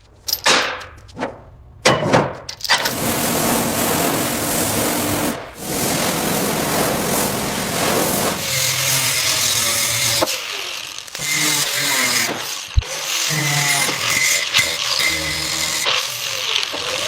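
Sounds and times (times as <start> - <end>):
rough rubbing hiss: 2.8 - 10.2
power tool running: 2.8 - 17.0.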